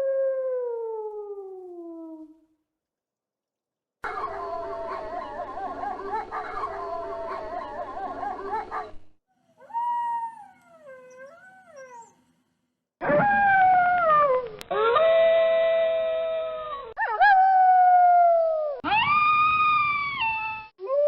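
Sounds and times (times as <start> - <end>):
wolves howling: 4.0 - 9.0.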